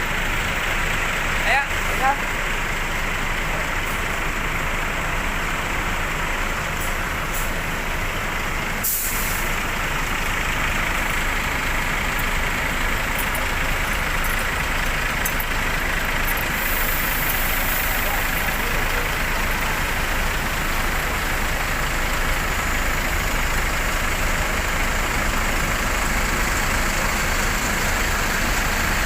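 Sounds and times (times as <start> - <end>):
bus diesel engines running: 0.0 - 29.0
air brake hiss: 8.8 - 9.6, 16.5 - 18.0.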